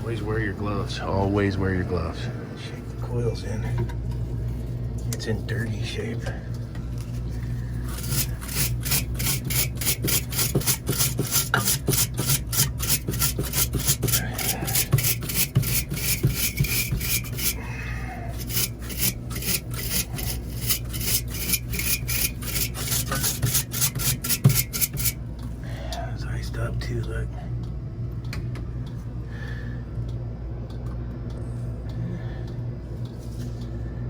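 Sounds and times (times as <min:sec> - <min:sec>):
steady low hum: 0:00.0 - 0:34.0
brush scrubbing metal coil: 0:07.0 - 0:25.2.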